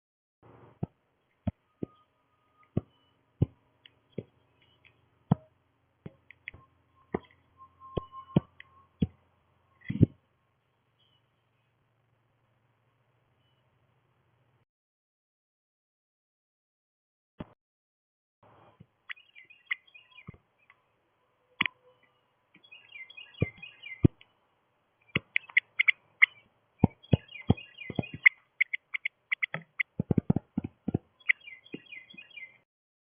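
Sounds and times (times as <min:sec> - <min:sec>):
small birds chirping: 0:00.8 - 0:10.2, 0:10.9 - 0:11.8, 0:19.0 - 0:32.7
sharp clicks and taps: 0:25.1 - 0:31.1.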